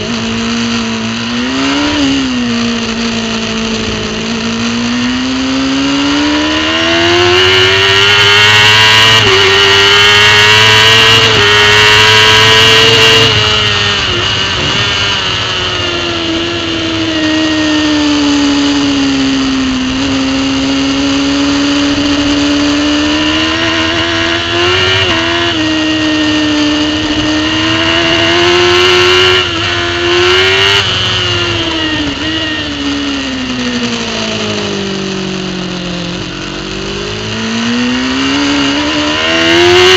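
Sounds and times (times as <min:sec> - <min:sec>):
superbike engine at full throttle: 0:00.0 - 0:39.9
wind rushing: 0:13.3 - 0:17.6.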